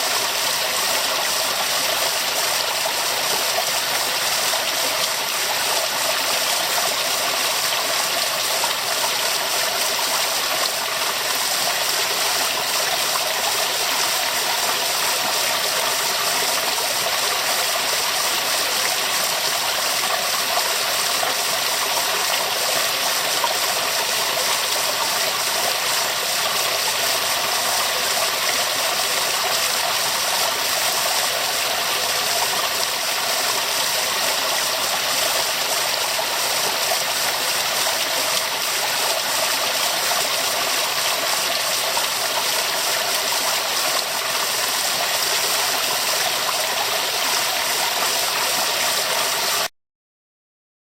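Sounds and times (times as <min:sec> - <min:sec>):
waterfall rushing: 0:18.8 - 0:49.7.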